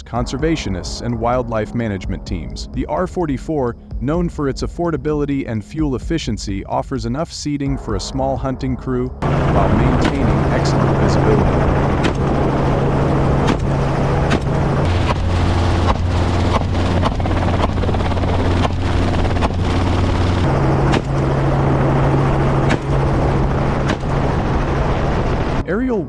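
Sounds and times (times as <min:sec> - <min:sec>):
helicopter rotor and engine hum: 0:09.2 - 0:25.6.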